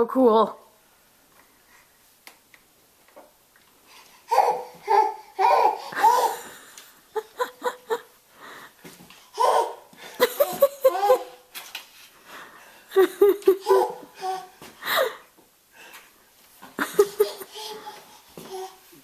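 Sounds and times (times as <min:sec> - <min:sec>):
baby laughing and babbling: 0:04.2 - 0:06.5, 0:09.3 - 0:11.5, 0:13.4 - 0:14.7, 0:17.0 - 0:19.0.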